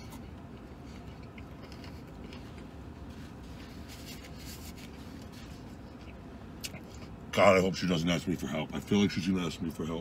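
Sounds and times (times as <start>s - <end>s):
man chewing food: 0.0s - 7.2s
low background hum: 0.0s - 10.0s.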